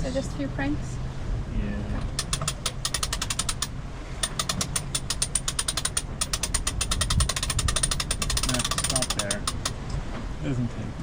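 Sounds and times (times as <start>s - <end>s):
winch pawls clicking: 2.1s - 9.8s.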